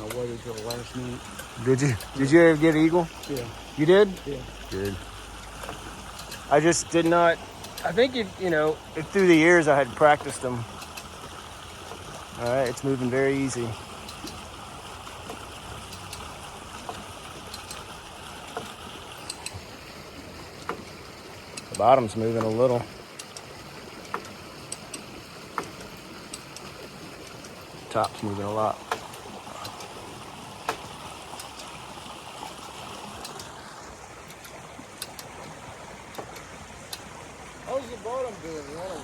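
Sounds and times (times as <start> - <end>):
light clicks and knocks: 0.0 - 19.7, 20.4 - 33.6, 34.2 - 39.0
flowing water rushing: 0.0 - 39.0
faint ticks: 20.6 - 30.0.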